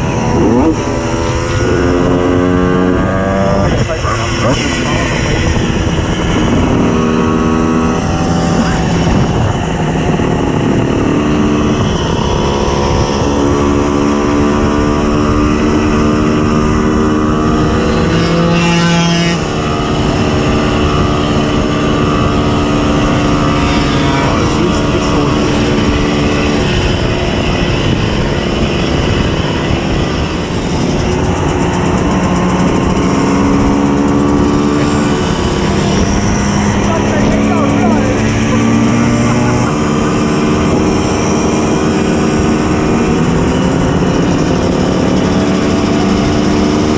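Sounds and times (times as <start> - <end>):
two-stroke moped engine revving: 0.0 - 46.9.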